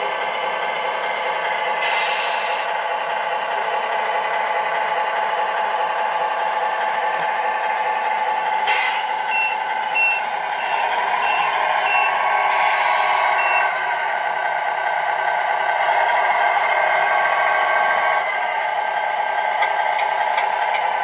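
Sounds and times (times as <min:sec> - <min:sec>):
high reversing beeps: 0:08.8 - 0:13.8.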